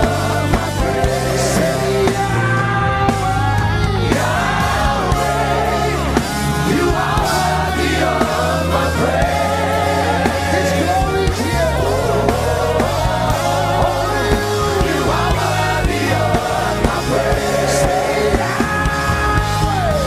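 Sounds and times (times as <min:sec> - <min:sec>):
bass guitar: 0:00.0 - 0:20.0.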